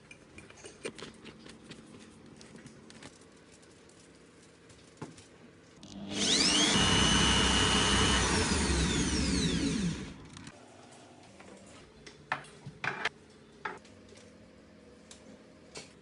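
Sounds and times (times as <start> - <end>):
electric motor whining: 5.8 - 10.5.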